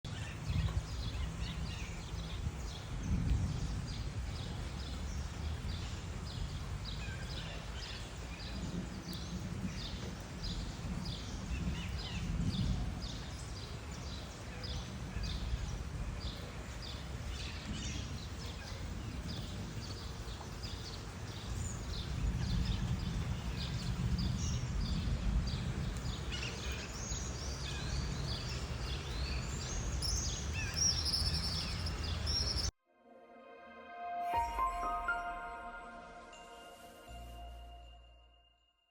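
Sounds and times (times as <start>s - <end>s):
short high chirps: 34.1s - 38.7s.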